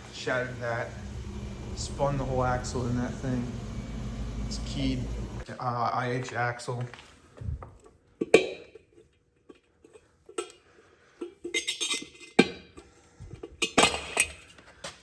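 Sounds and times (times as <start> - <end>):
metal parts clinking: 11.4 - 12.4.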